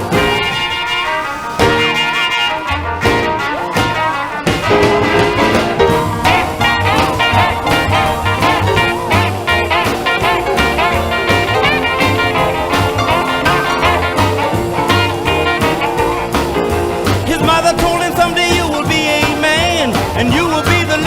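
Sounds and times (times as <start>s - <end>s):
upbeat swing music with singing: 0.0s - 21.0s.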